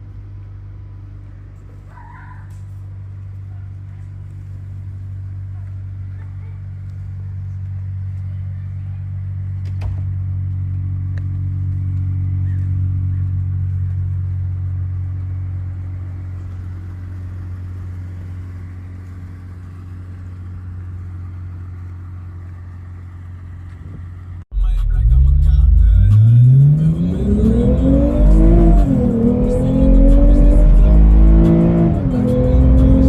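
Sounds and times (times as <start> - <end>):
car engine idling: 0.0 - 33.0
car engine revving: 24.6 - 33.0.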